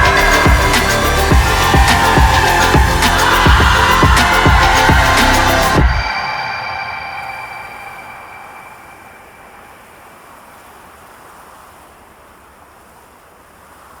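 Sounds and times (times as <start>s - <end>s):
music: 0.0s - 6.2s
steady rushing noise: 0.0s - 11.4s.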